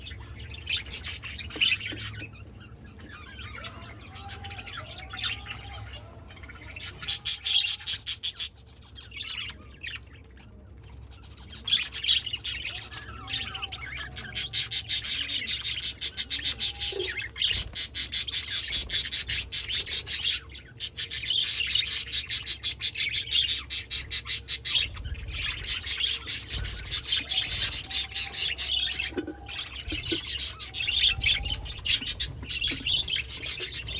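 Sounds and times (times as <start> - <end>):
budgerigars chattering: 6.5 - 10.0, 11.3 - 33.9.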